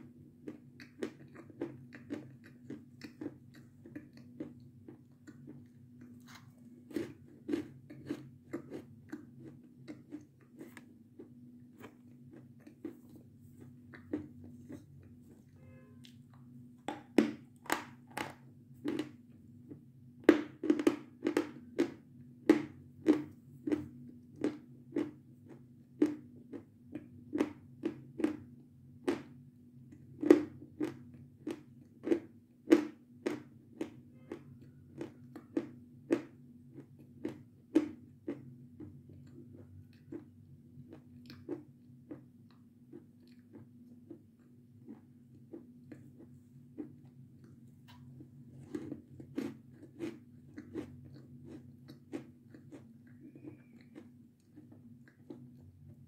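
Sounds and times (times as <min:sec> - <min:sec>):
crunching meringue: 0:30.2 - 0:56.0.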